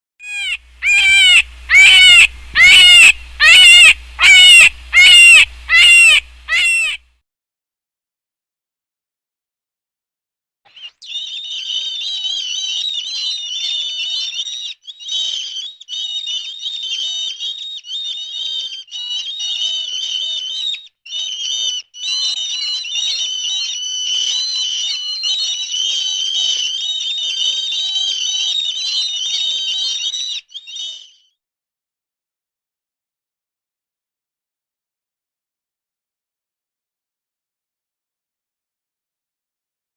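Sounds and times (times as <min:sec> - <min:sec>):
songbird warbling: 0:00.2 - 0:07.0.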